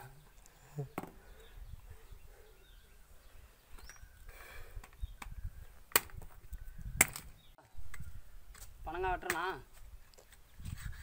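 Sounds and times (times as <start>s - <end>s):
bird chirps: 0.0s - 8.3s.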